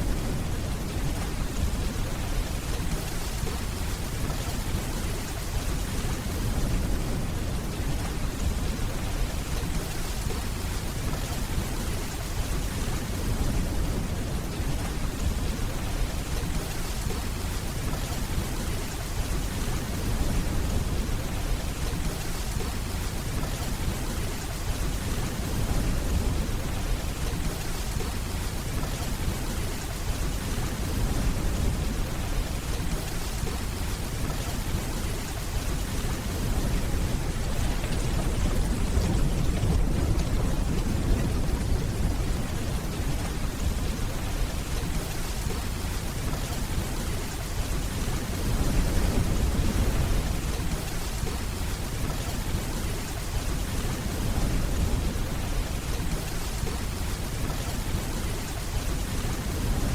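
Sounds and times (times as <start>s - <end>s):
steady rainfall: 0.0s - 59.9s
distant thunder rumble: 34.5s - 45.6s.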